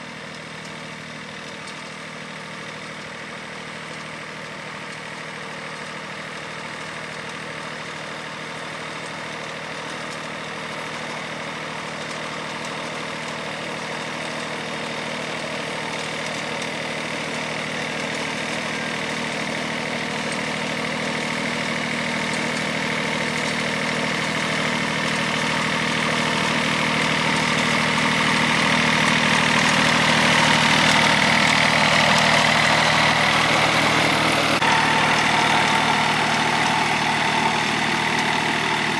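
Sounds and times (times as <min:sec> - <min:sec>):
engine idling: 0:00.0 - 0:38.9.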